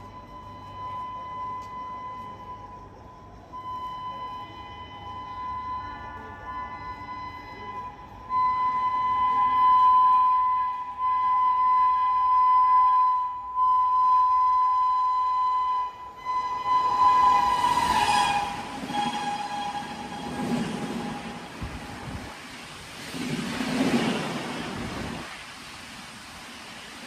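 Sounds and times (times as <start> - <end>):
train rushing past: 3.6 - 27.0
locomotive horn blasts: 5.8 - 22.3.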